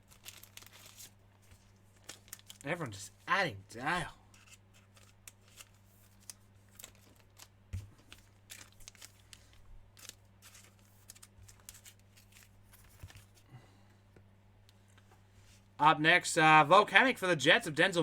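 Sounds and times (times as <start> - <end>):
low electrical hum: 0.0 - 18.0
trading cards clicking and rustling: 3.9 - 13.4.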